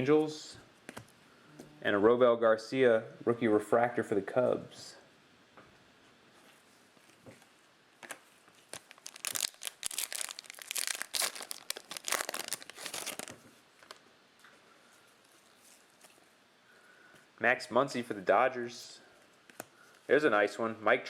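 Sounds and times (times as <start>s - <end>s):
plastic wrapper tearing and crinkling: 8.0s - 14.0s.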